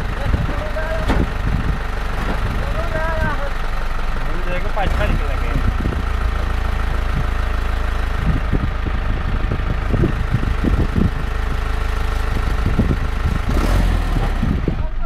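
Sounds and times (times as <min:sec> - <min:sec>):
vehicle engine idling: 0:00.0 - 0:15.0
dull knocks: 0:01.0 - 0:02.6.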